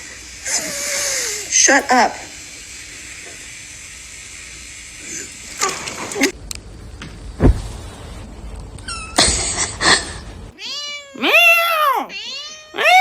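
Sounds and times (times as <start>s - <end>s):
thump: 7.4s - 7.6s
cat meowing: 10.6s - 13.0s.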